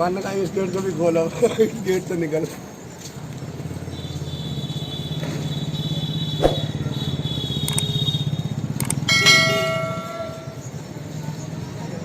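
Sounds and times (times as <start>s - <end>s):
sharp click: 7.6s - 7.9s.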